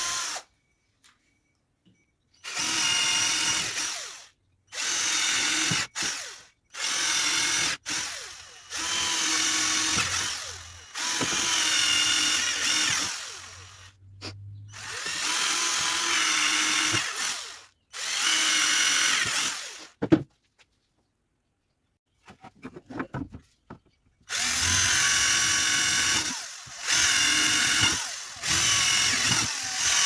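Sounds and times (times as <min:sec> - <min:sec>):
power drill running in bursts: 0:02.4 - 0:13.9, 0:14.8 - 0:19.9, 0:24.3 - 0:30.0.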